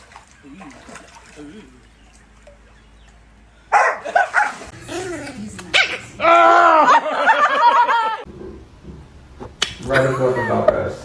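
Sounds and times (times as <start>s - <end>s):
dog barking and yelping: 3.7s - 6.6s
dog whining: 4.3s - 6.6s.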